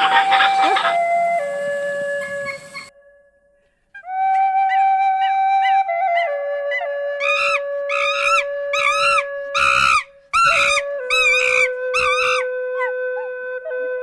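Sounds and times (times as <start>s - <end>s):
animal crying out: 0.0s - 1.5s, 7.2s - 12.4s
soft flute music: 0.0s - 14.0s.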